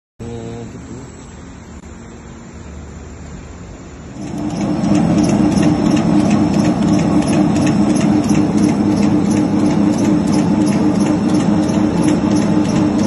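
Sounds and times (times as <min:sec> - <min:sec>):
machine motor hum: 0:03.9 - 0:13.0.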